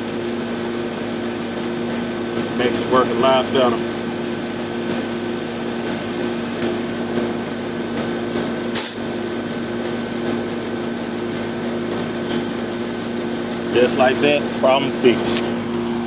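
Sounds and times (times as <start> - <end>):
air conditioning hum: 0.0 - 16.0
sharp hiss of refrigerant: 8.6 - 9.2.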